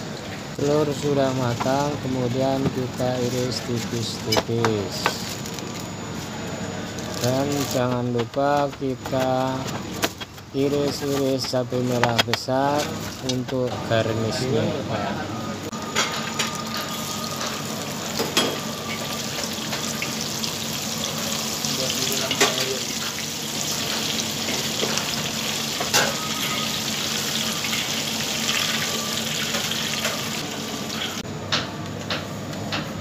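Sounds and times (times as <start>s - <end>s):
chillies sizzling in oil: 16.2s - 31.2s.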